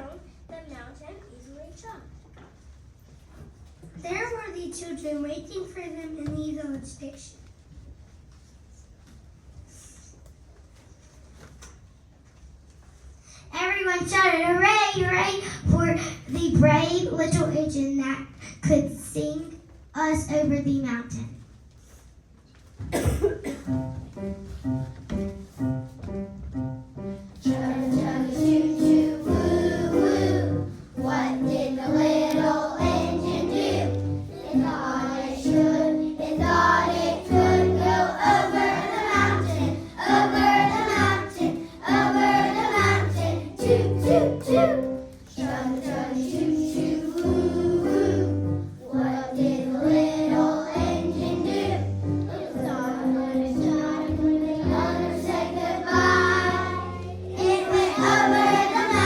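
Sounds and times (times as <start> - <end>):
children's choir singing: 27.4 - 59.0.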